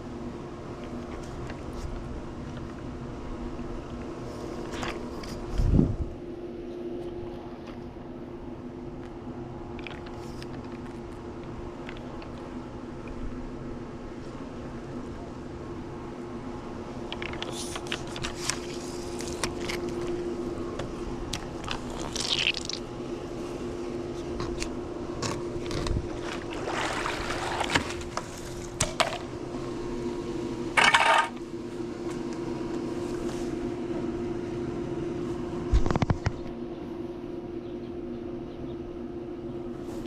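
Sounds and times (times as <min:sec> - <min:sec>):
pool pump humming: 0:00.0 - 0:40.0
water gushing: 0:21.6 - 0:22.9, 0:26.1 - 0:28.0
water splashing from hose: 0:21.6 - 0:22.9, 0:26.0 - 0:28.7.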